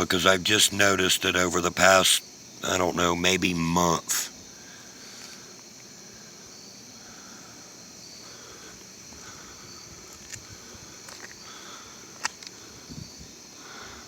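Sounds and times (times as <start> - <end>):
insects droning: 0.0 - 14.0
faint clicks: 12.2 - 12.6.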